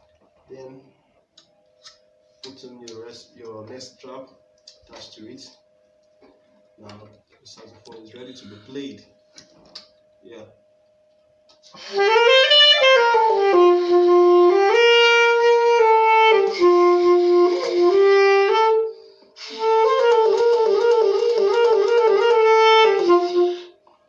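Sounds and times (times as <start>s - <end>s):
alto saxophone melody: 11.7s - 23.9s.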